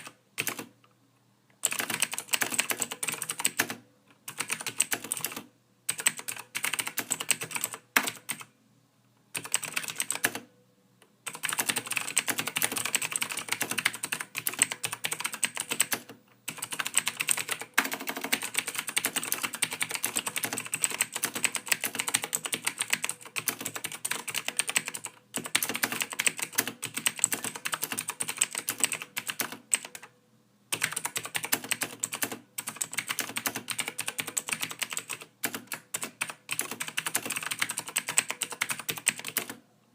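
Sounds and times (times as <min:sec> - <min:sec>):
typing on computer keyboard: 0:00.0 - 0:00.7, 0:01.6 - 0:08.5, 0:09.3 - 0:10.5, 0:11.2 - 0:30.1, 0:30.7 - 0:39.6.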